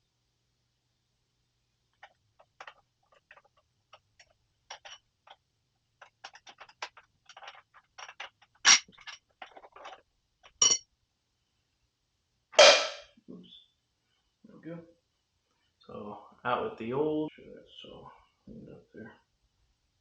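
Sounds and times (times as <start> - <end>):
metal clicks and clinks: 6.0 - 10.8
sharp metallic knocks: 12.6 - 13.1.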